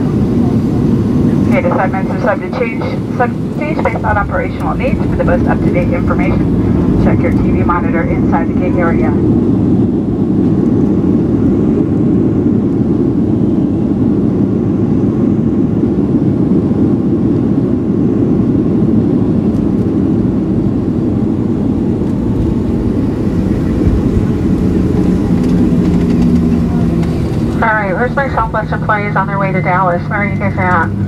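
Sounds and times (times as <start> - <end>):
air rushing over fuselage: 0.0 - 12.6, 21.0 - 30.3
airliner engines: 0.0 - 31.0.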